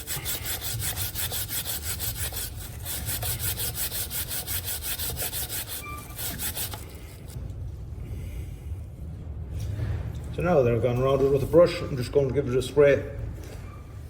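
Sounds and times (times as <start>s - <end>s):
stiff brush scrubbing a chain: 0.0s - 7.4s.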